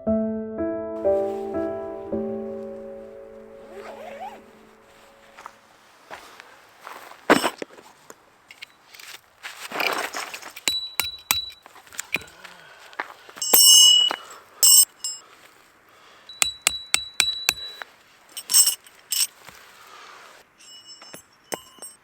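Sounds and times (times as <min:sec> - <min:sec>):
rustle: 0:03.6 - 0:10.7, 0:11.6 - 0:16.3, 0:17.7 - 0:21.9
hard items clinking together: 0:13.4 - 0:15.2, 0:16.4 - 0:19.6.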